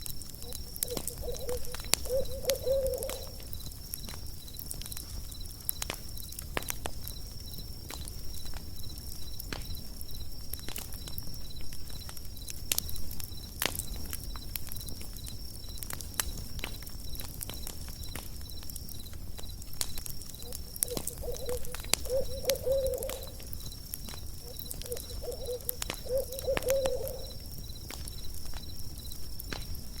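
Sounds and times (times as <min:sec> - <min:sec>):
campfire crackling: 0:00.0 - 0:30.0
crickets chirping: 0:00.0 - 0:30.0
owl hooting: 0:00.4 - 0:03.5, 0:20.4 - 0:23.5, 0:24.4 - 0:27.4.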